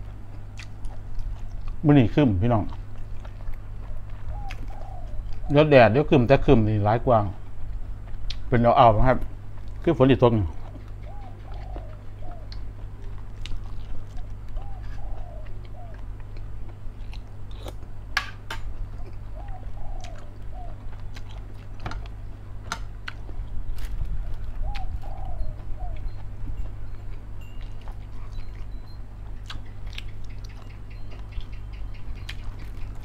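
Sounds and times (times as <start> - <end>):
person chewing food: 0.0 - 5.5, 9.2 - 33.0
steady low hum: 0.0 - 33.0
dove cooing: 4.2 - 6.0, 10.4 - 13.0, 13.7 - 16.3, 18.8 - 20.9, 24.1 - 26.9.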